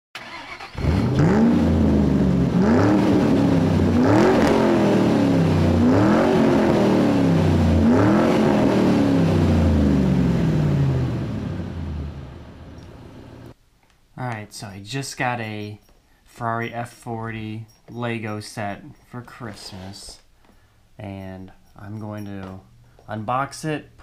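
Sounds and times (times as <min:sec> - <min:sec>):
car engine revving: 0:00.2 - 0:13.5.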